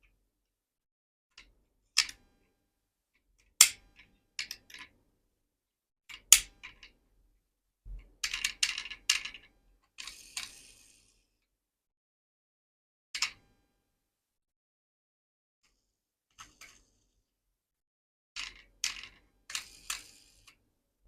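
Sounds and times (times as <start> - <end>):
clicks of small metal and plastic parts: 1.3 - 2.2, 3.4 - 5.0, 6.1 - 7.0, 8.2 - 10.5, 13.2 - 13.4, 18.4 - 20.6.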